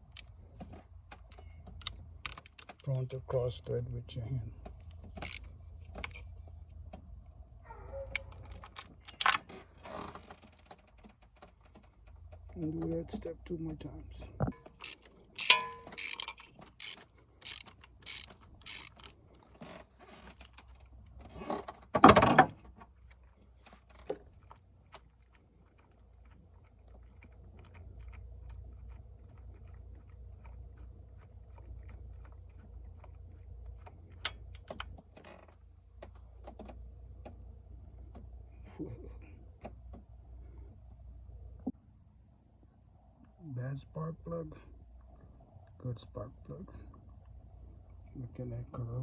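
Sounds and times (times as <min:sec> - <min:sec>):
socket ratchet clicking: 0:00.0 - 0:00.3, 0:01.2 - 0:02.9, 0:04.8 - 0:06.2, 0:14.7 - 0:19.2
faint low hum: 0:00.0 - 0:21.4, 0:22.5 - 0:49.0.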